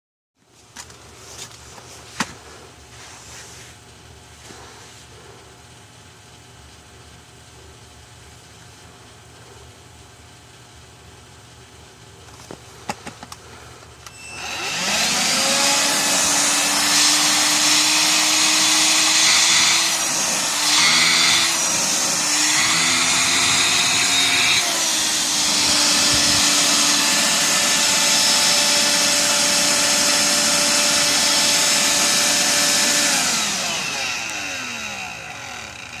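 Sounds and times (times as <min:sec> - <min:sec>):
vacuum motor whining: 0:14.0 - 0:36.0.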